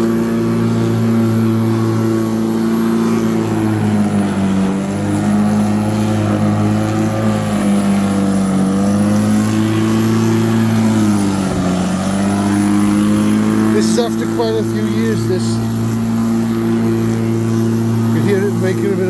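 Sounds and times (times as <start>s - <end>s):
electric lawnmower motor whining: 0.0s - 19.0s
person talking: 13.7s - 15.6s, 18.1s - 19.0s.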